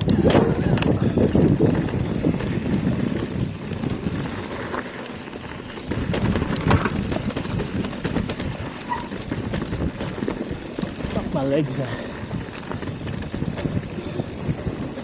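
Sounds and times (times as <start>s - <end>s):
wind on microphone: 0.0s - 4.8s, 5.6s - 15.0s
bike rattling over bumps: 0.0s - 15.0s
bike tyres on dirt: 0.0s - 15.0s.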